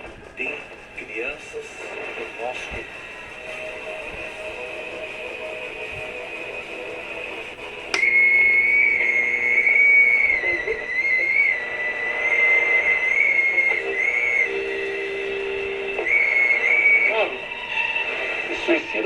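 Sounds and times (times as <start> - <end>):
high whistle tone from tv speaker: 0.4 - 19.0
click: 7.9 - 8.1.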